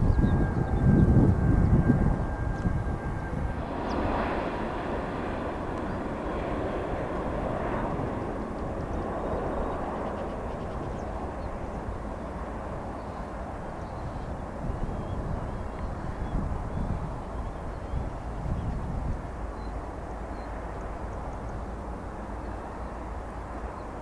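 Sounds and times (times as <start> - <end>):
jet engines rushing: 0.0 - 24.0.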